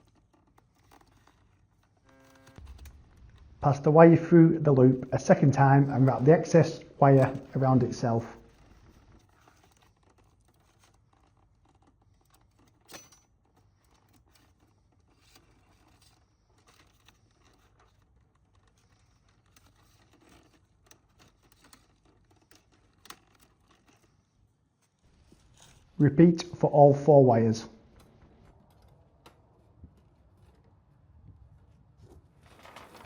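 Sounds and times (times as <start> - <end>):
wire scratching and rubbing: 4.7 - 26.0.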